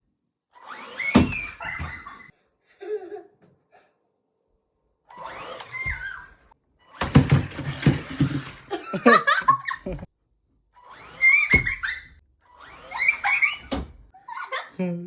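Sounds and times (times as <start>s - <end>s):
toy electric motor whirring: 0.6s - 2.2s, 5.1s - 8.8s, 10.8s - 13.7s.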